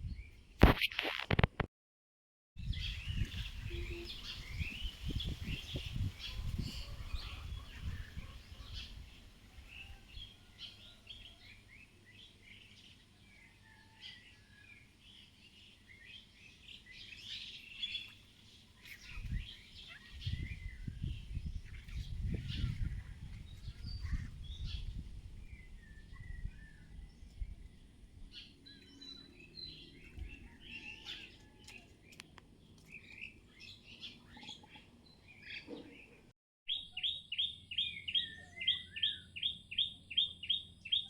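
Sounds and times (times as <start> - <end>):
wind buffeting microphone: 0.0 - 0.4, 2.6 - 10.3, 19.0 - 28.4
birds chirping: 2.6 - 13.0, 15.1 - 41.0.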